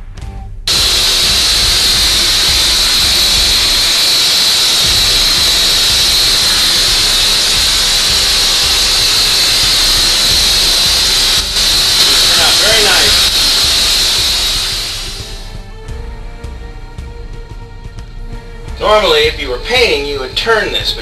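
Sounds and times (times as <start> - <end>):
spray gun hissing: 0.7 - 15.6.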